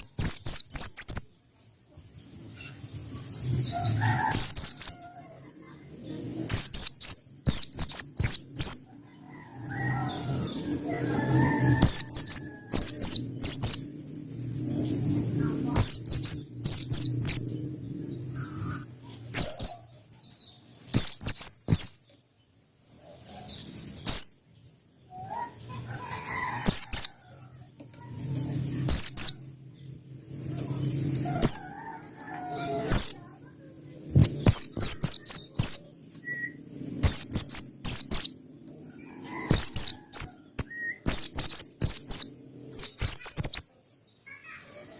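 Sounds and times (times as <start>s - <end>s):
white-eye bird singing: 0.0s - 44.9s
low hum: 5.4s - 19.5s, 26.8s - 39.3s.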